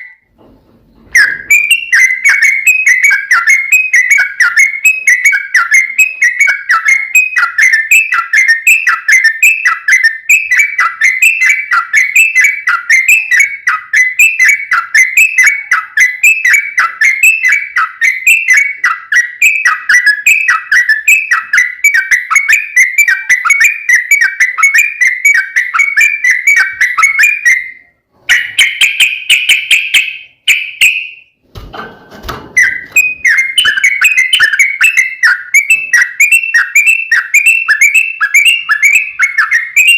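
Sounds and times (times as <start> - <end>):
bulbuls singing bubbly whistles: 32.6 - 39.9.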